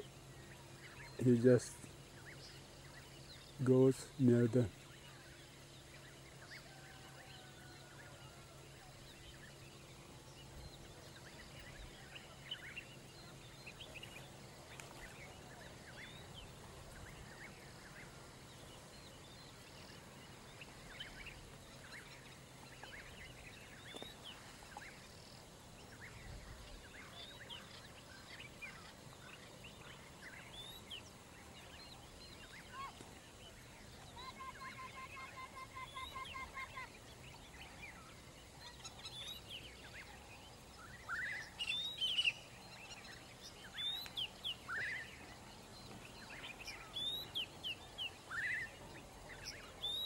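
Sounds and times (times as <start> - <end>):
steady low hum: 0.0 - 49.8
birds chirping and whistling: 40.8 - 50.0.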